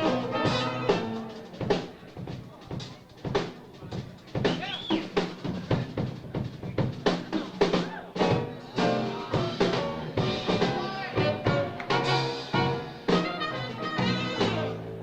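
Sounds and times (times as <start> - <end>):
drum kit hits: 0.0 - 14.8
live jazz band playing: 0.0 - 15.0.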